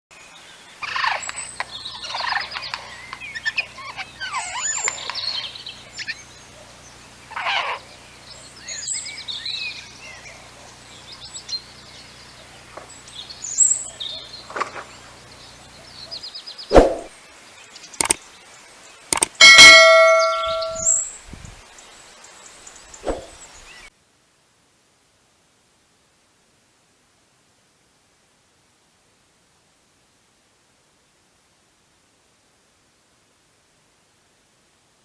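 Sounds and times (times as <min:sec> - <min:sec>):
birds chirping and trilling: 0:00.4 - 0:23.9
loud sharp sound: 0:19.2 - 0:21.0.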